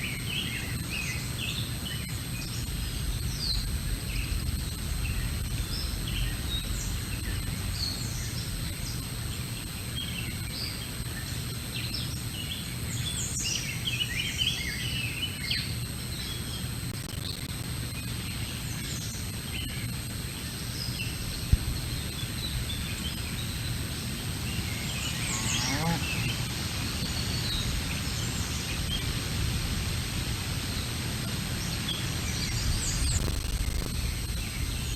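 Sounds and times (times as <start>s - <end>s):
songbirds chirping: 0.1s - 16.6s, 18.3s - 34.9s
low outdoor rumble: 2.1s - 11.1s, 19.9s - 34.9s.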